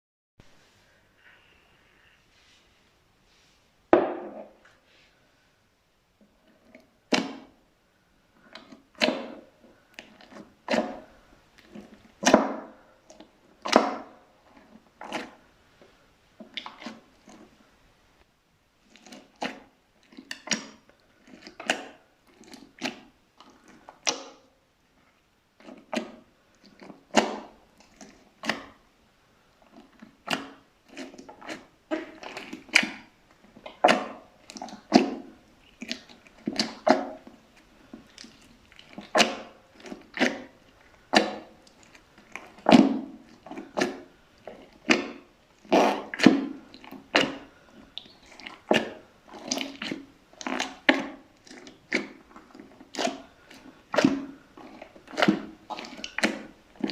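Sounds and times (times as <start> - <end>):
slime squishing: 8.4 - 15.6, 16.4 - 17.6, 18.8 - 24.4, 25.5 - 28.8, 29.6 - 56.9.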